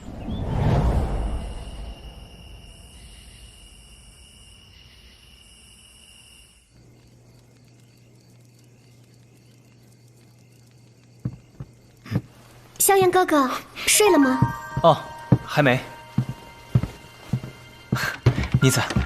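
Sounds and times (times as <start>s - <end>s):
crickets trilling: 0.2s - 19.0s
faint low hum: 6.6s - 13.9s.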